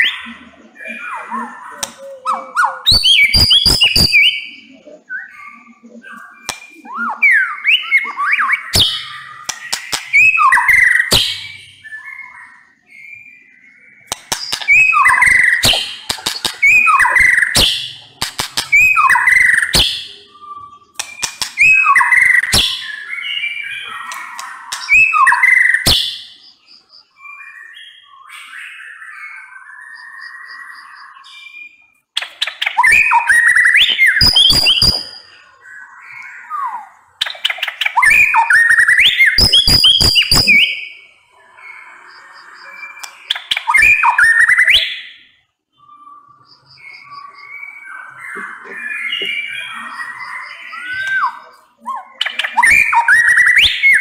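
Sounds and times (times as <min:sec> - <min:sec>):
bird singing whistled phrases: 0:00.0 - 0:54.0
soft bird calls: 0:00.0 - 0:54.0
bird clicking notes: 0:08.8 - 0:11.4, 0:14.1 - 0:20.0, 0:21.0 - 0:22.9, 0:24.1 - 0:26.0.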